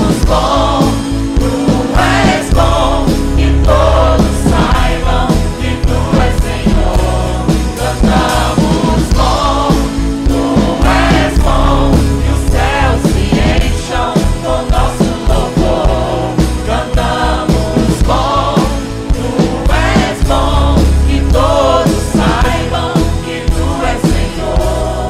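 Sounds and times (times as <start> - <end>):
band with heavy bass: 0.0 - 25.0
voices singing worship song: 0.0 - 25.0.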